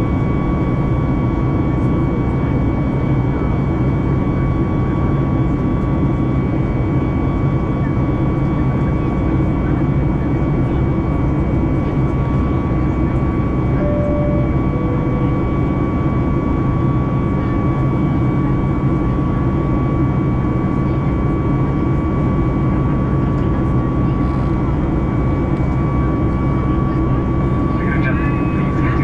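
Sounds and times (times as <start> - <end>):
jet engines whining and rumbling: 0.0 - 29.0
two-note falling chime: 13.8 - 16.0.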